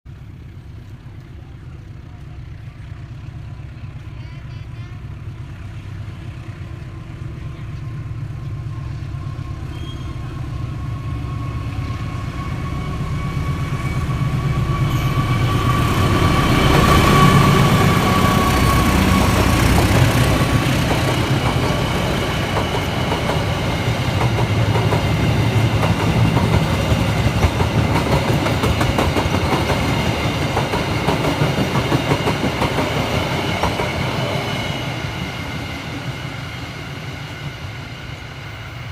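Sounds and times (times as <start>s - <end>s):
train passing: 0.1s - 38.9s
train wheels clattering on rails: 12.0s - 37.5s.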